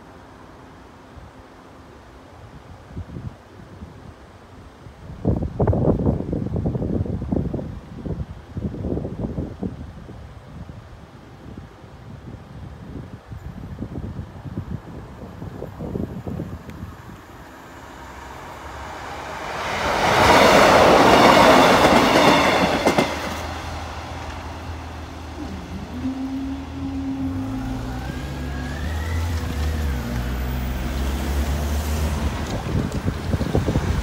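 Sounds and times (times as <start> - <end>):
train wheel and engine noise: 0.0 - 34.0
diesel engines droning: 23.5 - 34.0.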